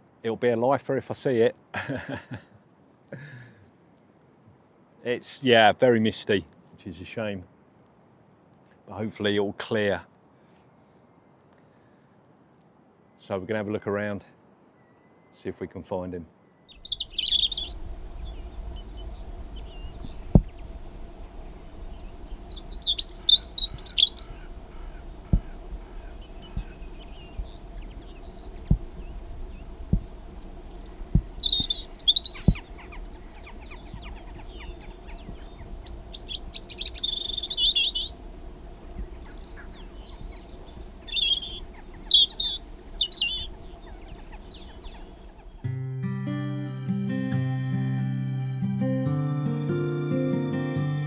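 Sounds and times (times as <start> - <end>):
songbirds chirping: 16.7 - 45.7
steady low rumble: 16.8 - 45.6
sharp knocks: 19.6 - 20.8, 23.7 - 35.8.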